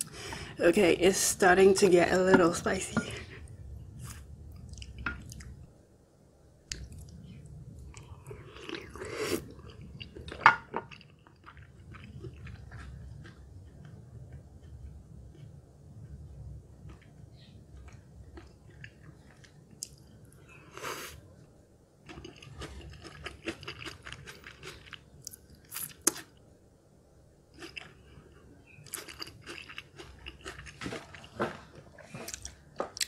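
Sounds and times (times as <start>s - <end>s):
wet chewing clicks and smacks: 6.7s - 7.3s.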